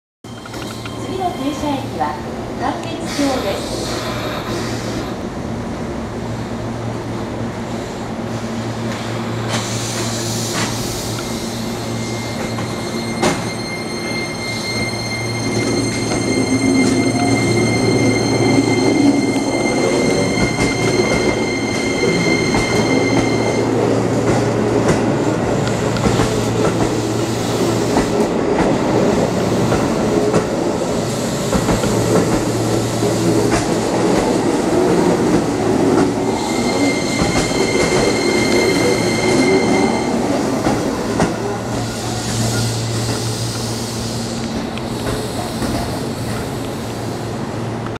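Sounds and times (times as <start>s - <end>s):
train wheel and rail rumble: 0.3s - 47.9s.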